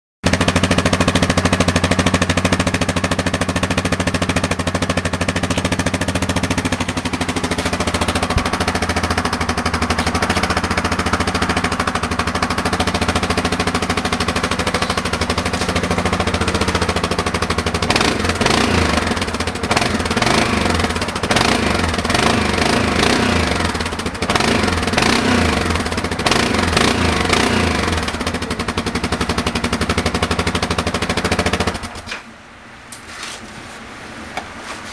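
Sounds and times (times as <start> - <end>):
engine exhaust popping at idle: 0.2 - 32.1
engine revving: 5.4 - 31.9.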